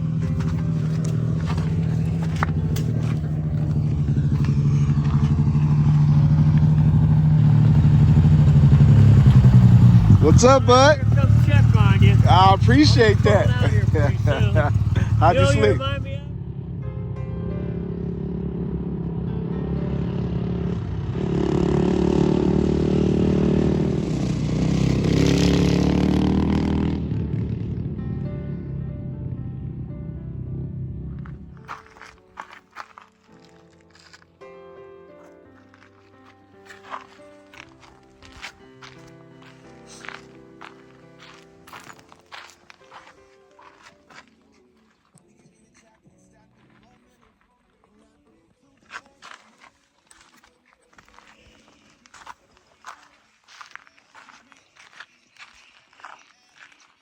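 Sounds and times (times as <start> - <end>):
motorcycle engine at low revs: 0.0 - 16.8, 20.2 - 28.7.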